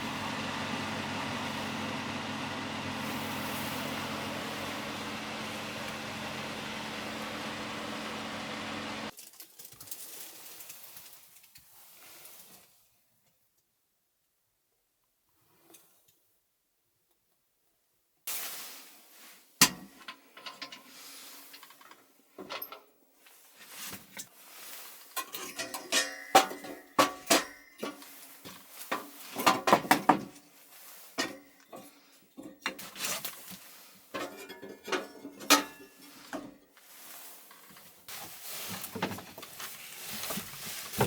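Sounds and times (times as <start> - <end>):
dishes and cutlery clinking: 25.2 - 28.0.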